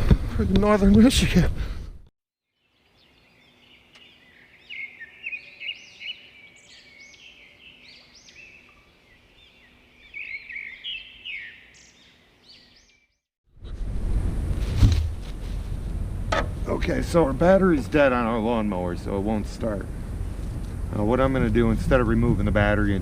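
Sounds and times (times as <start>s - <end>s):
songbirds chirping and singing: 2.6s - 13.2s.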